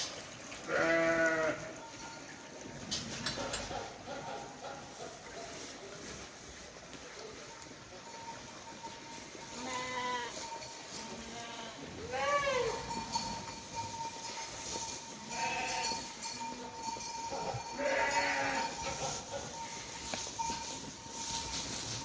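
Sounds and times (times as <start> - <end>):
livestock bleating: 0.7 - 1.8, 9.6 - 10.4, 11.1 - 12.9, 15.3 - 16.0, 17.6 - 18.8.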